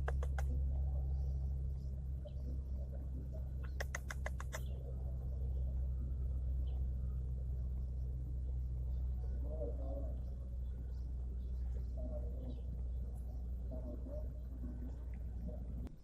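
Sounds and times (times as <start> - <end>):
sharp clicks: 0.0 - 0.6, 3.6 - 4.7
low hum: 0.0 - 16.0.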